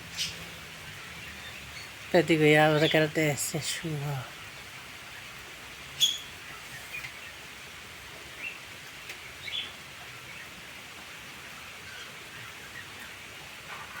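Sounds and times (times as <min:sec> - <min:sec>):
steady rain falling: 0:00.0 - 0:14.0
bird chirps: 0:06.0 - 0:07.1.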